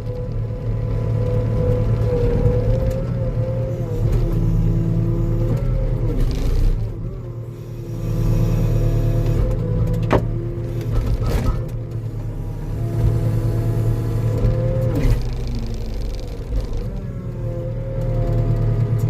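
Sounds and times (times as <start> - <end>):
diesel engine running: 0.0 - 19.0
hydraulic whine: 3.9 - 18.7.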